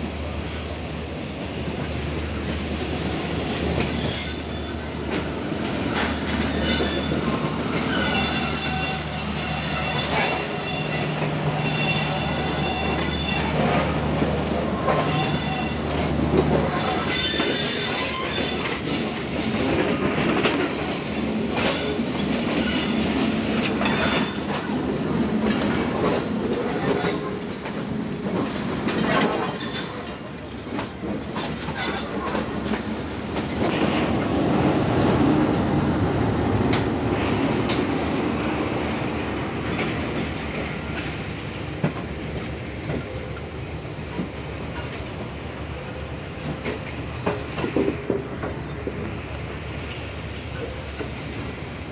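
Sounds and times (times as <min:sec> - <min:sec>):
diesel locomotive rumble: 0:00.0 - 0:51.9
train wheels clattering over joints: 0:01.8 - 0:38.2
high wheel squeal: 0:06.5 - 0:13.8, 0:14.8 - 0:16.0, 0:16.6 - 0:18.8.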